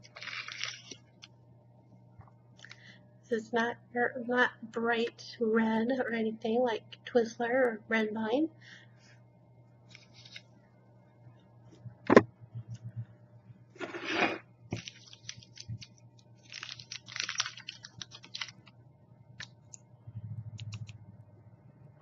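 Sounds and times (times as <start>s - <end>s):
person chewing licorice: 13.9s - 18.7s.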